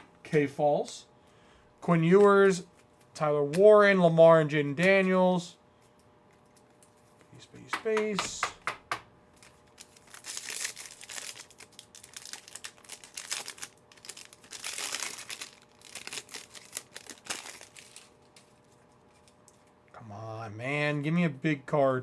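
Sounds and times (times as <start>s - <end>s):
plastic wrappers tearing and crinkling: 9.3s - 19.6s.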